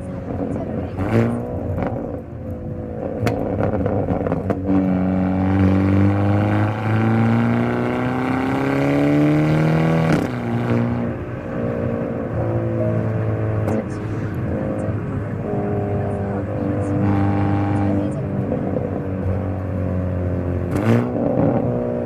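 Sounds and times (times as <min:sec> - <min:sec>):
car engine accelerating: 0:00.0 - 0:22.0
exhaust cracks: 0:00.2 - 0:05.6.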